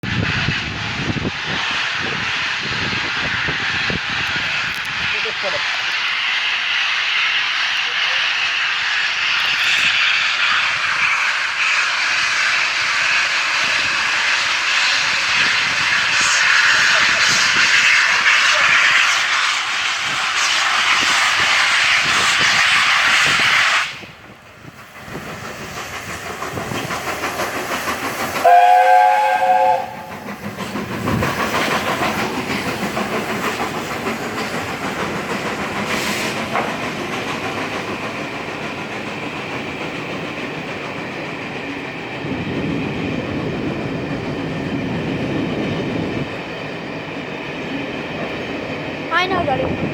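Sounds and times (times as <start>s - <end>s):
train wheel clatter: 0.1s - 49.9s
steam locomotive whistle: 28.4s - 30.3s.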